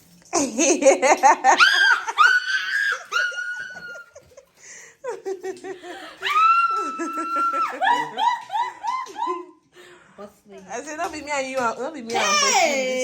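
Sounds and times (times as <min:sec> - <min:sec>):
people laughing: 0:00.4 - 0:09.6.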